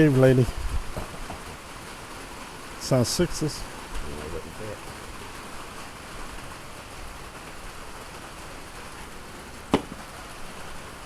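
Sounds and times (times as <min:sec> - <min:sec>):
rain falling: 0:00.0 - 0:11.0
sharp knock: 0:09.7 - 0:10.0.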